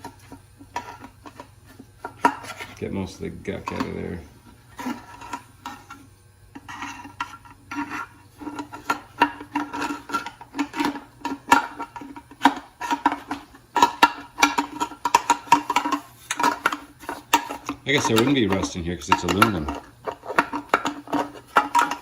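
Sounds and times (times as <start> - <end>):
rag scrubbing inside metal part: 0.0 - 22.0.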